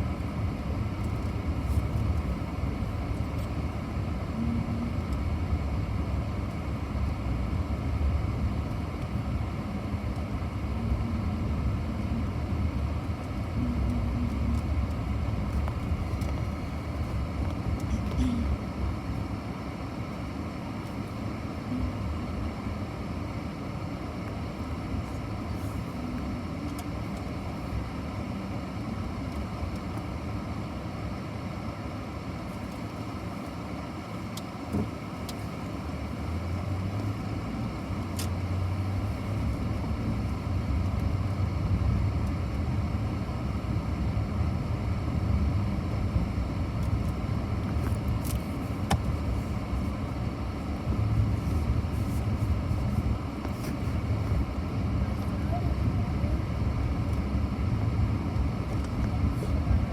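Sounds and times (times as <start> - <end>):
low rumble with hiss: 0.0 - 59.9.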